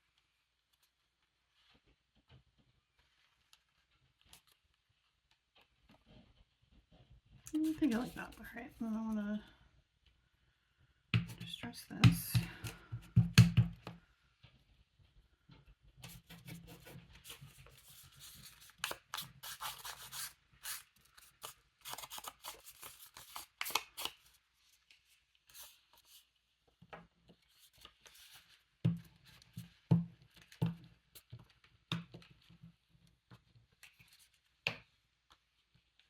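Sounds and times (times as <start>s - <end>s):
paper edges scraped and rubbed: 7.6s - 8.6s, 16.1s - 24.2s
knocks on work surface: 12.0s - 13.9s.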